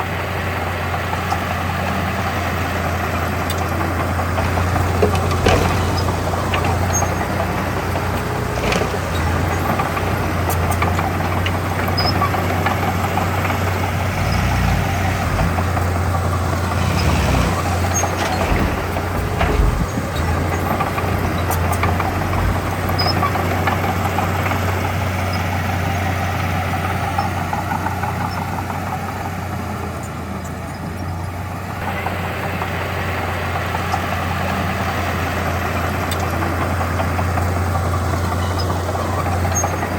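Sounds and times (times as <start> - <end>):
heavy diesel engines droning: 0.0 - 39.9.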